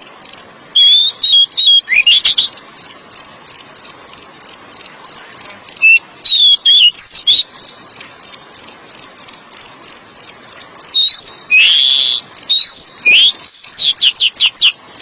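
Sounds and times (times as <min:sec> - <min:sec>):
repeating high chirp: 0:00.8 - 0:02.9, 0:05.4 - 0:08.0, 0:10.8 - 0:15.0
bird singing whistled notes: 0:00.8 - 0:04.2, 0:05.4 - 0:10.0, 0:10.8 - 0:15.0.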